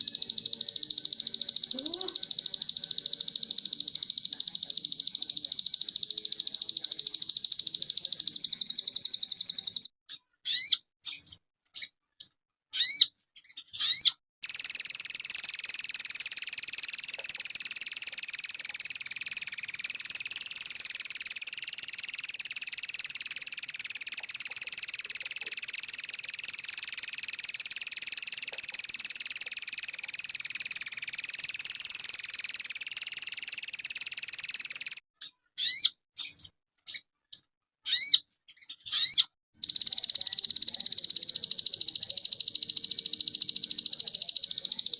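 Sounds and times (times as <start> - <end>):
songbird singing: 0.0 - 44.9.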